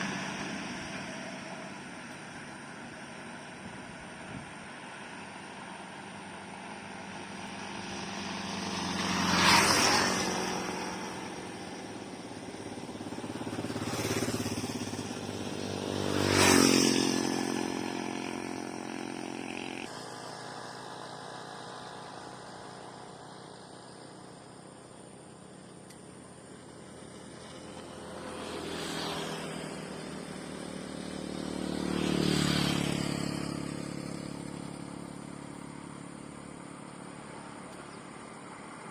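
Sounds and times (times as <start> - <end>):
vehicles passing by: 0.0 - 38.9.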